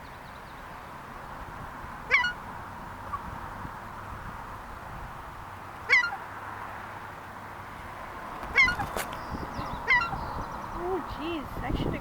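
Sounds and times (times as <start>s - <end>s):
gull calling: 2.1s - 2.4s, 5.9s - 6.2s, 8.5s - 8.9s, 9.5s - 10.3s.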